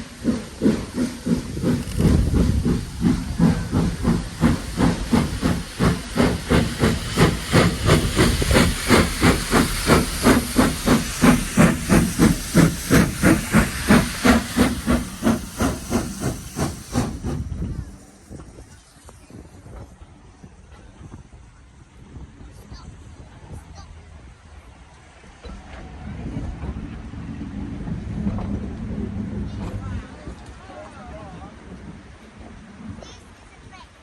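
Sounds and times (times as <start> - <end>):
steam hissing: 0.0 - 22.2
steam locomotive exhaust chuffs: 0.0 - 33.8.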